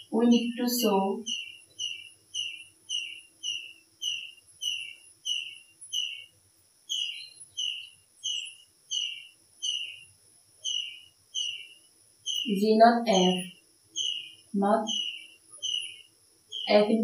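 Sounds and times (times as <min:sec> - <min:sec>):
small bird whistling call: 0:01.2 - 0:06.3, 0:06.9 - 0:10.0, 0:10.6 - 0:11.7, 0:12.3 - 0:12.5, 0:13.2 - 0:16.7.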